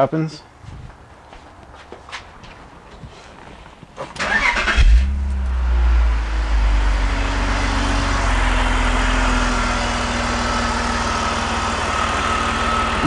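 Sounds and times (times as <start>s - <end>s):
car engine starting and idling: 4.0s - 13.0s.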